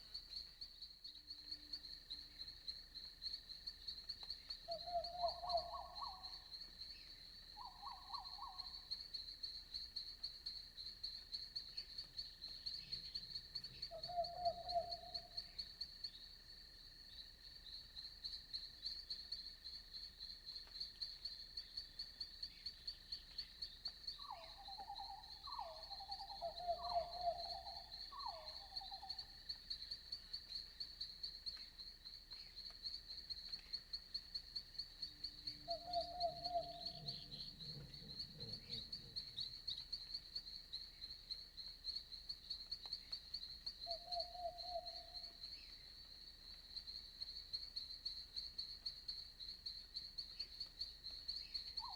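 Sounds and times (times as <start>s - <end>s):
insects trilling: 0.0s - 51.9s.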